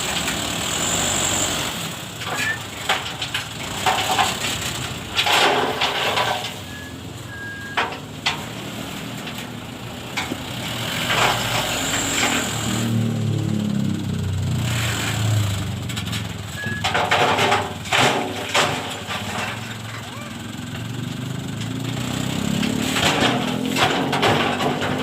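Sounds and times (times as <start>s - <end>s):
diesel truck engine running: 0.0s - 25.0s
loud knocks and rattles: 2.1s - 6.6s, 15.2s - 25.0s.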